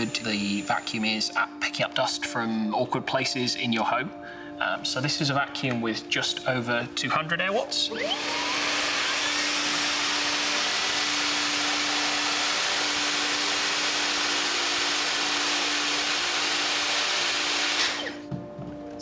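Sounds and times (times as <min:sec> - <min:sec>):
vacuum cleaner motor whine: 0:00.0 - 0:01.0, 0:07.9 - 0:18.7.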